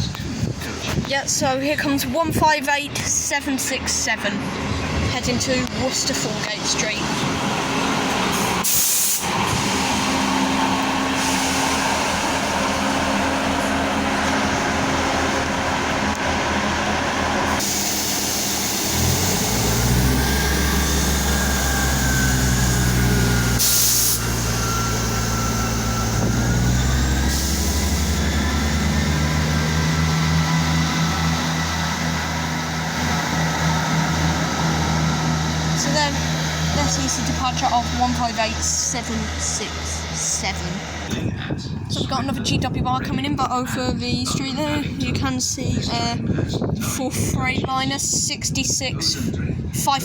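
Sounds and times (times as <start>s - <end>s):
train diesel engines running: 0.0s - 50.0s
rising and falling engine whine: 4.3s - 42.8s
air hiss from train: 8.4s - 9.9s, 11.0s - 12.2s, 17.6s - 20.0s, 23.4s - 24.6s, 27.3s - 28.2s.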